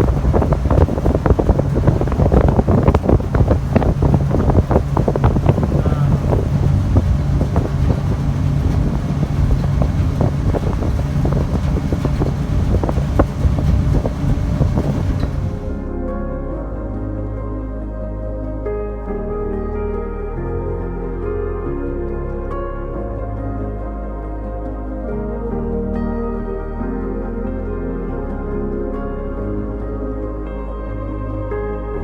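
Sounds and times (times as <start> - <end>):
wind buffeting microphone: 0.0 - 16.0
ferry engines droning: 0.0 - 17.2.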